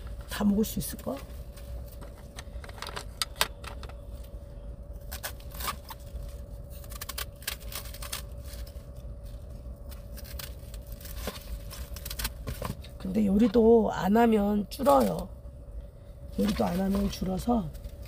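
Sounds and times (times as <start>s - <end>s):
faint steady hum: 0.0s - 18.0s
plastic packaging crinkling: 5.0s - 12.7s.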